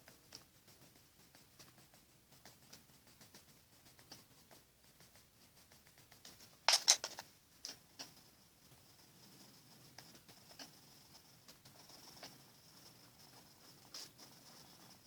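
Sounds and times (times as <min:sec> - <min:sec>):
pencil scratching on paper: 0:08.0 - 0:15.0.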